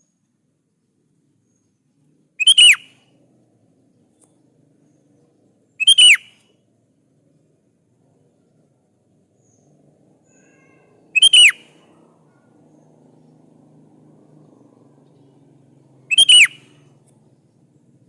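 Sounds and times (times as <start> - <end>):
bird whistled calls: 2.4 - 3.0, 5.8 - 6.4, 10.3 - 11.9, 16.1 - 16.9.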